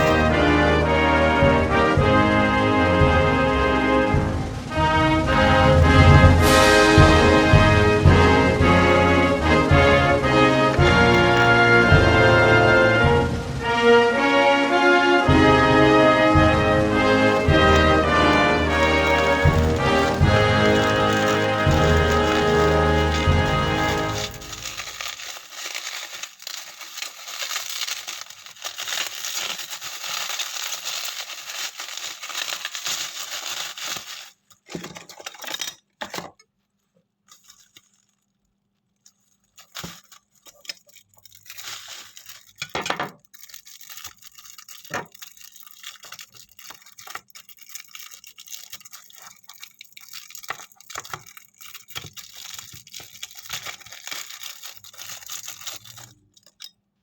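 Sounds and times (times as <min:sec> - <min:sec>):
packaging crinkling and tearing: 0:00.0 - 0:00.7, 0:08.2 - 0:13.0, 0:17.0 - 0:35.6, 0:36.7 - 0:56.7
clicks taps and rustles: 0:10.3 - 0:12.5, 0:17.1 - 0:38.3, 0:39.0 - 0:56.8.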